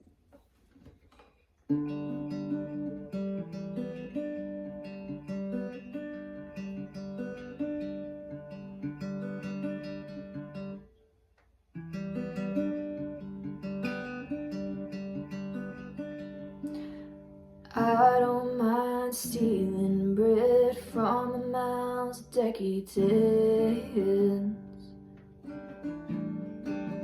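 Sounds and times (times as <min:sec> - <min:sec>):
acoustic guitar ringing chords: 0:11.9 - 0:27.0.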